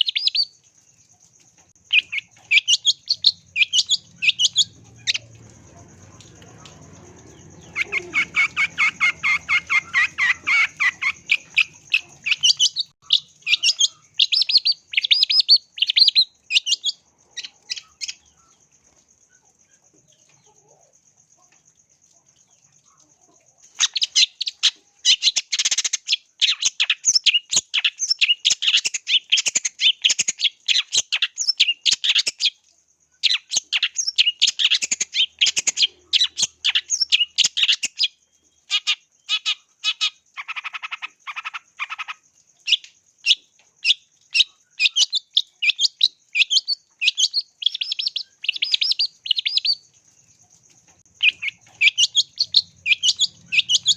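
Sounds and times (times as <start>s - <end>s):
bird singing rapid notes: 1.8s - 18.5s, 33.3s - 49.9s, 51.0s - 53.9s.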